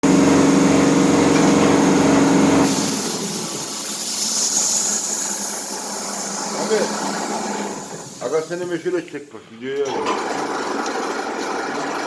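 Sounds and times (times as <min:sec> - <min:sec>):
machine humming: 0:00.0 - 0:09.1
air hissing: 0:02.6 - 0:09.0.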